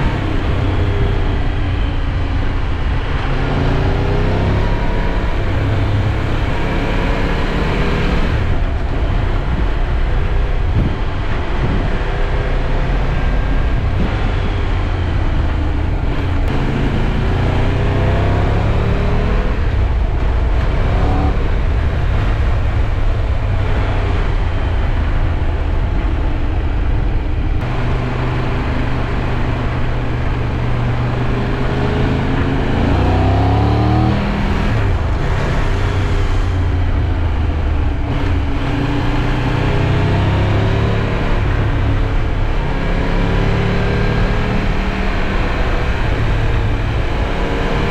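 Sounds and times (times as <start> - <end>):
wind rushing: 8.2 - 40.0.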